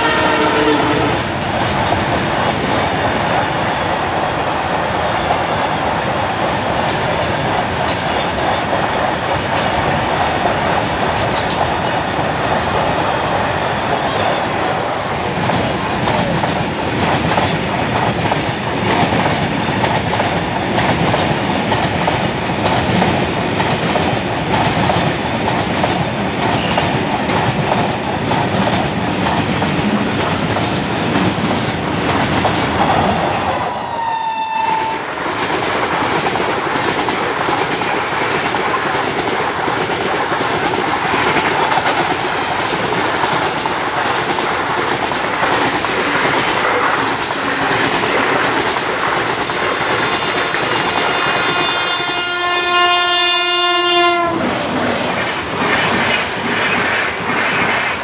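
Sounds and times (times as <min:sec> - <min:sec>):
train horn blast: 0:00.0 - 0:01.3, 0:33.8 - 0:35.0, 0:50.1 - 0:54.4
train wheels clattering over rails: 0:00.0 - 0:33.8, 0:34.6 - 0:52.3, 0:54.2 - 0:58.0.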